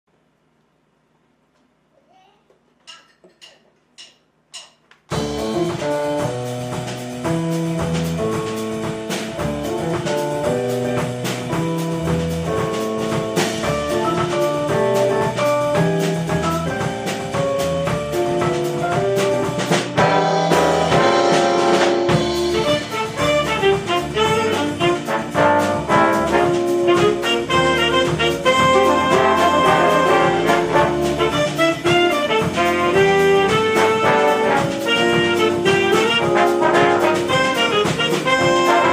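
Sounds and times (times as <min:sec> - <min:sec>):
jazz big band playing: 0:05.1 - 0:38.9.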